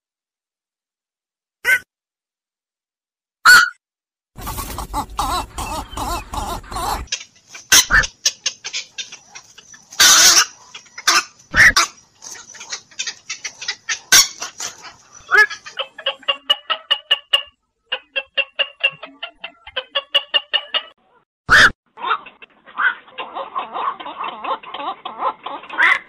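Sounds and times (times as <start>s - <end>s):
heron croaking calls: 4.5s - 16.0s.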